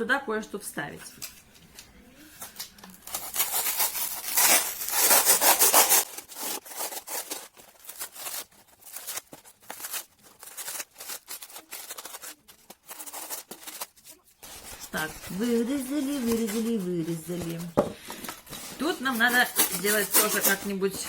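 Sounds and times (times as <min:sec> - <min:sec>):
blade cutting foam: 0:03.2 - 0:07.4.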